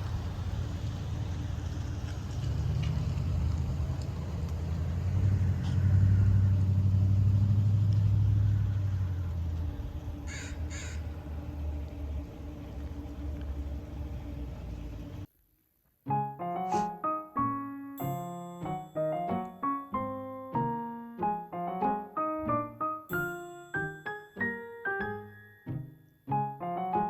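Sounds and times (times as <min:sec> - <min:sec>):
low steady rumble: 0:00.0 - 0:15.3
short harsh calls: 0:10.3 - 0:11.1.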